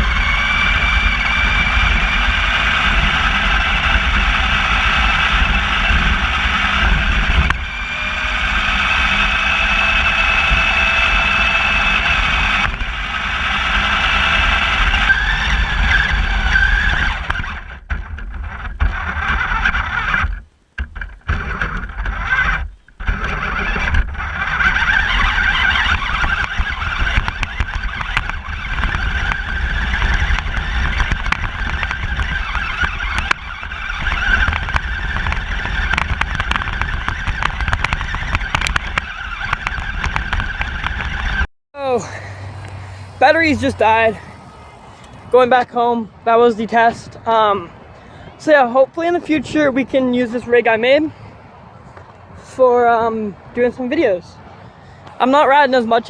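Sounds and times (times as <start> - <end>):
electric toy car motor whining: 0.0 - 17.8, 21.3 - 45.4
tyres rumbling over ground: 0.0 - 56.0.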